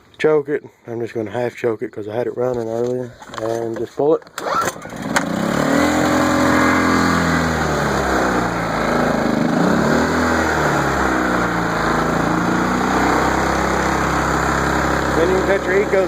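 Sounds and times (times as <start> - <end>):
small generator engine running unsteadily: 4.4 - 16.0.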